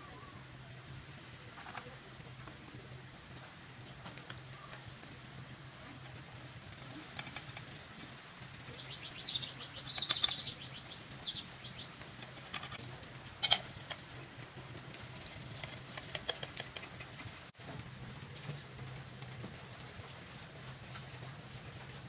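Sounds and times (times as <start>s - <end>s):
small birds trilling: 6.8s - 12.8s.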